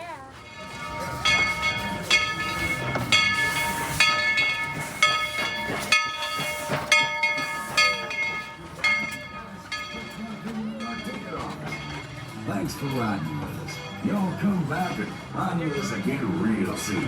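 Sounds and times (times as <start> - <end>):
steam locomotive bell ringing: 0.0 - 17.0
steam hissing: 0.7 - 8.4.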